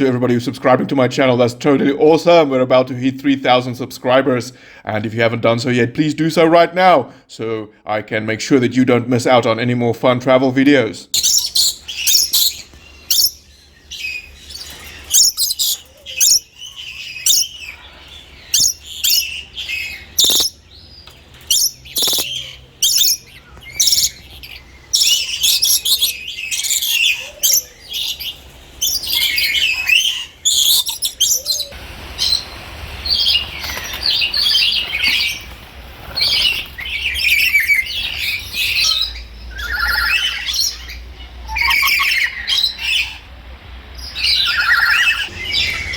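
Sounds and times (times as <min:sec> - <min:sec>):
birds chirping and squawking: 0:10.6 - 0:45.9.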